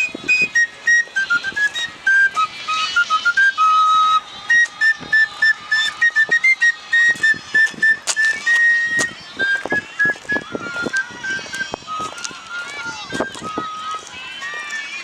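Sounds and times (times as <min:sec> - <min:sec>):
whistle playing quick melody: 0:00.0 - 0:14.0.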